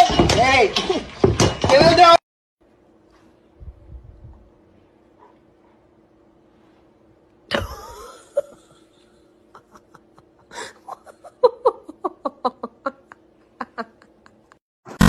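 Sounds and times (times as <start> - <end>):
person laughing: 7.5 - 14.6.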